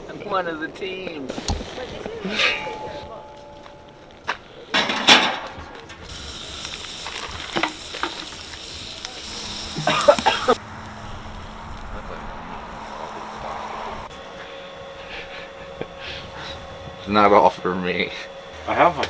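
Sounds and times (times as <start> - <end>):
utensil clattering against pan: 1.4 - 8.8
food sizzling in a frying pan: 5.5 - 10.6.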